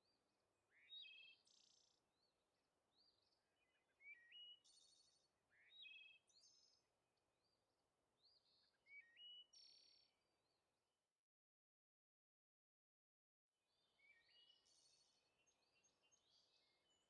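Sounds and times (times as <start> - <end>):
songbirds singing: 0.0 - 10.8, 13.7 - 17.0.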